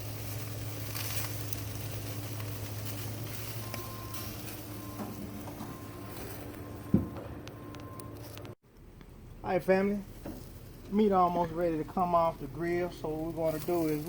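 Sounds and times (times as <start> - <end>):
small crackles and pops: 0.0 - 5.6, 7.4 - 9.2, 9.8 - 14.0
meat sizzling on grill: 0.0 - 6.9, 9.6 - 14.0.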